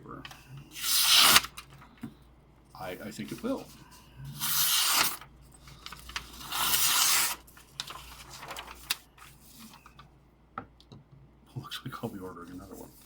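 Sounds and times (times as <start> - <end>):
knife slicing paper: 0.7 - 1.5, 4.4 - 5.2, 6.2 - 7.4.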